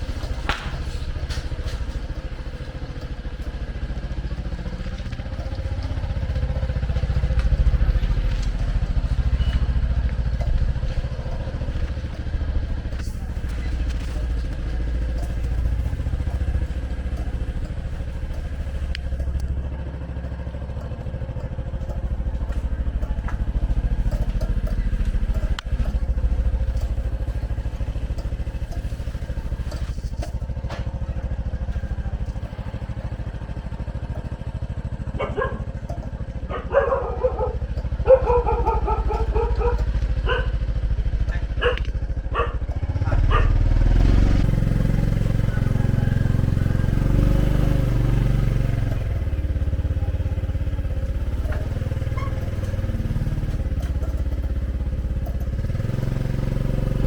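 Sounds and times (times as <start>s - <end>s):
motorcycle engine rumbling: 0.0s - 57.0s
dog barking: 35.1s - 43.8s.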